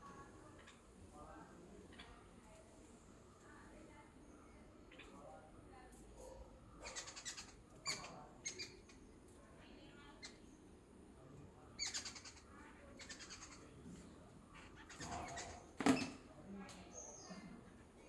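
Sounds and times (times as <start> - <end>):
birds chirping and trilling: 6.8 - 9.1, 11.8 - 13.7, 14.6 - 15.8.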